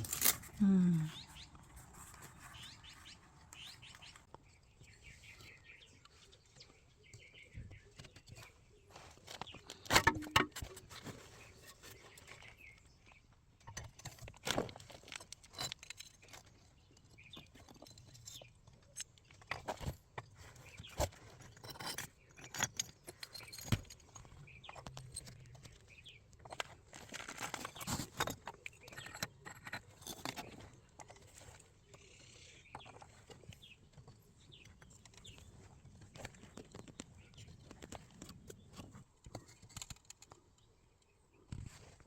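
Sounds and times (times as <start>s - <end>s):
pottery clinking and scraping: 0.0s - 0.6s, 21.0s - 25.6s, 26.4s - 31.4s.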